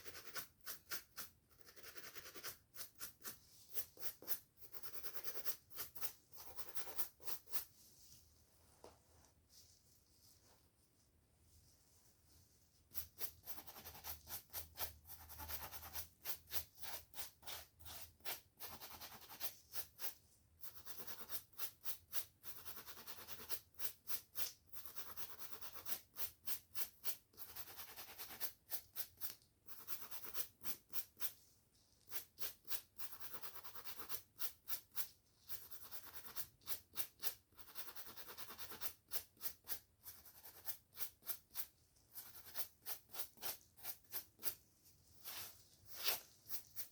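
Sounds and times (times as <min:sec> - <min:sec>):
scalp being scratched: 0:00.0 - 0:07.8, 0:12.9 - 0:46.9
hair being brushed: 0:41.3 - 0:46.9.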